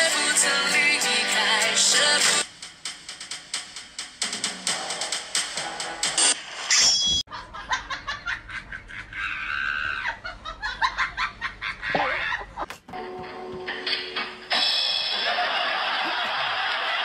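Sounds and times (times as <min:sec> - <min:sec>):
music: 0:00.0 - 0:06.7, 0:13.0 - 0:15.6
laughter in bursts: 0:07.3 - 0:12.7, 0:15.1 - 0:17.0.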